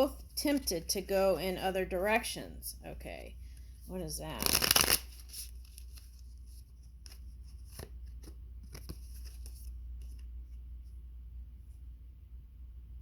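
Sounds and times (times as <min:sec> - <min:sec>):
low steady hum: 0:00.0 - 0:13.0
cards clicking and rustling: 0:04.4 - 0:06.2.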